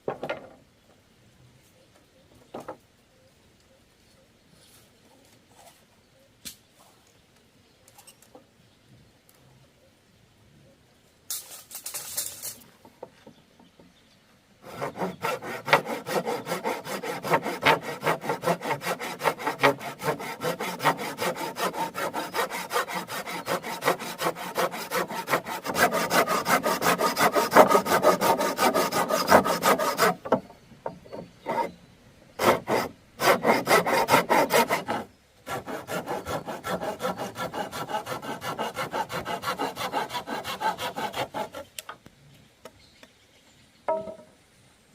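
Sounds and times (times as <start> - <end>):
hand saw cutting bamboo: 14.6 - 30.4, 31.2 - 31.8, 32.4 - 41.7.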